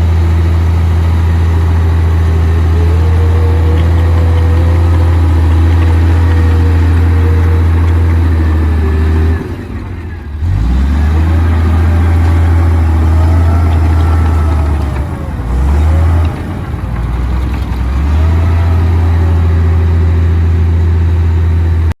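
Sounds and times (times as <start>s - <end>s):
bulldozer diesel engine running: 0.0s - 22.0s.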